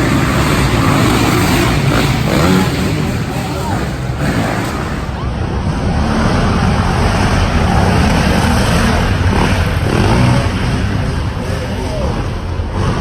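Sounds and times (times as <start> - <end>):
dirt bike engines running: 0.0 - 13.0.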